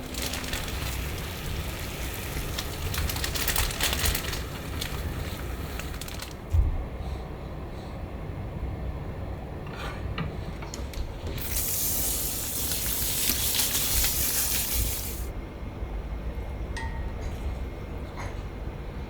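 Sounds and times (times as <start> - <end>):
loud even hiss: 11.4 - 15.3.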